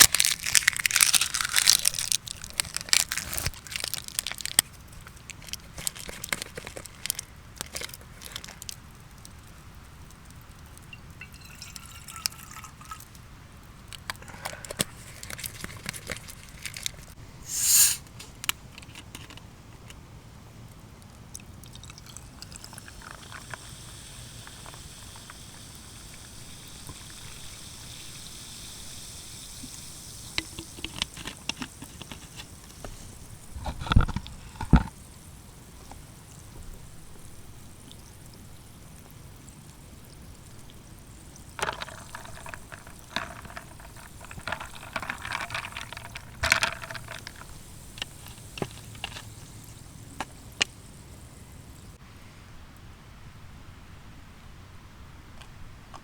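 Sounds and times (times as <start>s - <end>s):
liquid pouring: 9.5s - 13.2s, 21.6s - 33.6s, 39.6s - 51.9s.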